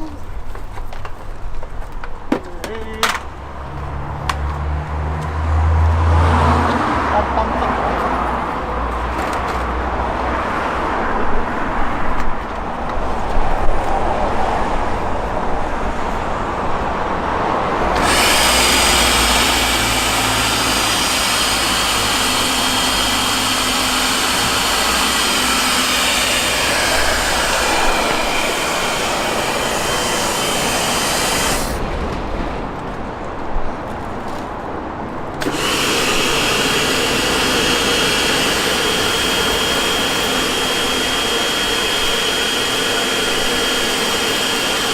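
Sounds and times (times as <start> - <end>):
pressure washer motor: 17.9 - 31.8, 35.4 - 44.9.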